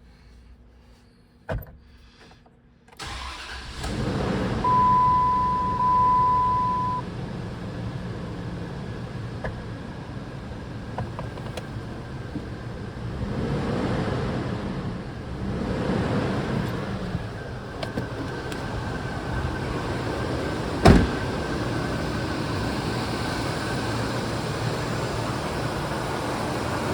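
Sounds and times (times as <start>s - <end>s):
engine starting and idling: 3.0s - 7.0s
high-pitched tone: 4.7s - 7.0s.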